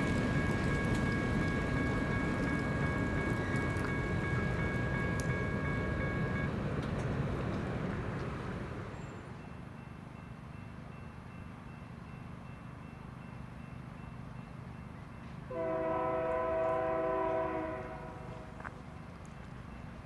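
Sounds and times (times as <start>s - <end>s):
locomotive air horn: 15.5s - 18.8s.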